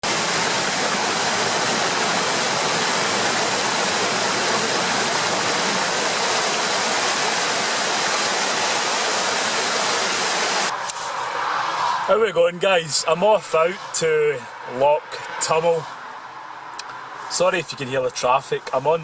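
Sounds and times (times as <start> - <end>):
water rushing: 0.0 - 12.4.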